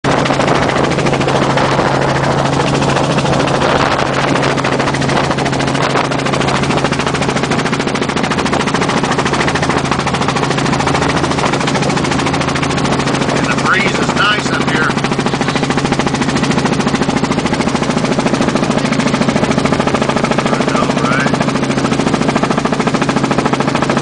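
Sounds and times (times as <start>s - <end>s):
helicopter rotor chop: 0.0s - 24.0s
low engine tone: 0.0s - 24.0s.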